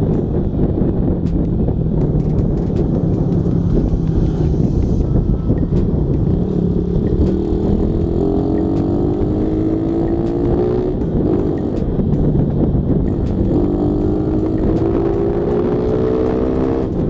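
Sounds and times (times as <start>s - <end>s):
motorcycle engine running: 0.0s - 17.0s
wind rumble on microphone: 0.0s - 17.0s.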